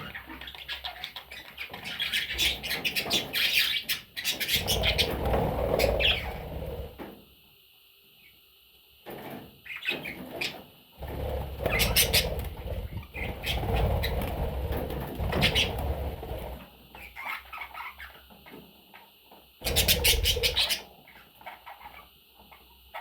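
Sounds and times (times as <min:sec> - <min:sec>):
budgerigars chirping: 0:00.0 - 0:05.2, 0:05.8 - 0:06.4, 0:11.6 - 0:14.3, 0:15.2 - 0:15.9, 0:16.9 - 0:18.2, 0:19.6 - 0:22.1
noisy rustling: 0:11.0 - 0:16.8.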